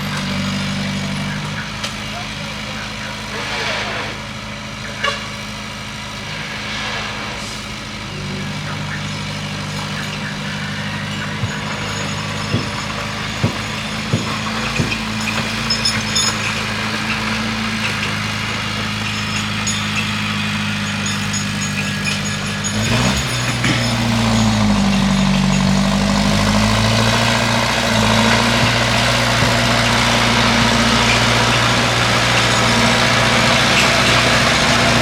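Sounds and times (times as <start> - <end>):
bulldozer diesel engine running: 0.0 - 35.0
sharp metal clanks: 11.0 - 35.0.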